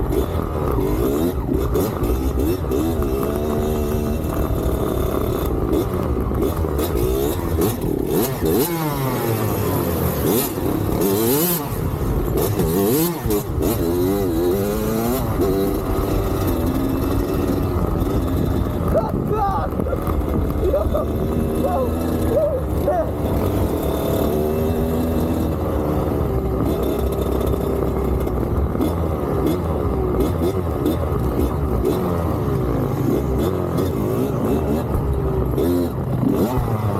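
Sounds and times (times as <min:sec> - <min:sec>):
dirt bike engine revving: 0:00.0 - 0:36.9
wind noise: 0:17.6 - 0:23.1.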